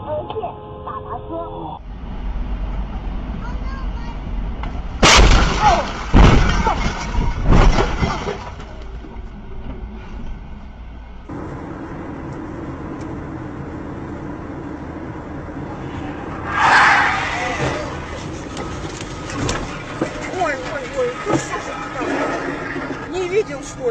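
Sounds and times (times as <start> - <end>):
steady background noise: 0.0 - 23.9
vehicle crash: 1.9 - 10.4, 15.4 - 23.9
heavy bangs with crunching: 4.6 - 9.0.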